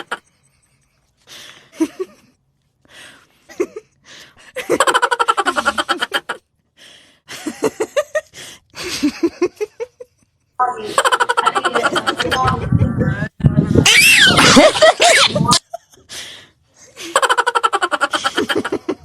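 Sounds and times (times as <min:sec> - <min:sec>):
rapid pulsed laughing calls: 0:13.6 - 0:15.6
rising calls: 0:13.8 - 0:15.6.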